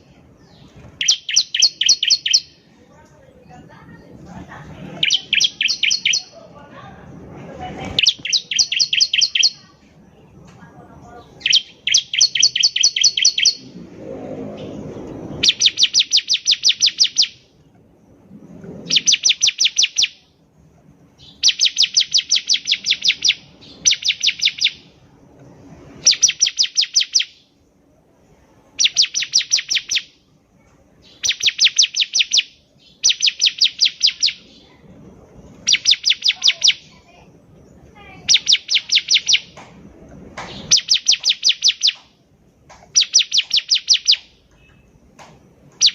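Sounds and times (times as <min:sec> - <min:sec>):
bird chirping song: 0:00.0 - 0:02.8, 0:04.8 - 0:06.6, 0:07.8 - 0:10.4, 0:11.1 - 0:17.9, 0:18.8 - 0:20.4, 0:21.2 - 0:25.1, 0:26.0 - 0:27.6, 0:28.8 - 0:30.3, 0:31.0 - 0:34.8, 0:35.4 - 0:39.7, 0:40.4 - 0:42.2, 0:42.8 - 0:45.9
low rumble: 0:02.5 - 0:08.5, 0:13.3 - 0:16.7, 0:17.4 - 0:19.6, 0:24.8 - 0:26.3, 0:34.4 - 0:35.9, 0:39.4 - 0:40.8.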